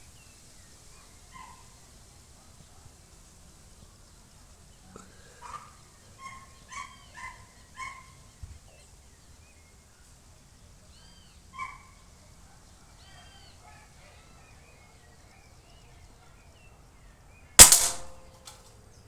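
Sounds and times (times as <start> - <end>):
dog barking: 1.0 - 1.7, 5.4 - 8.2.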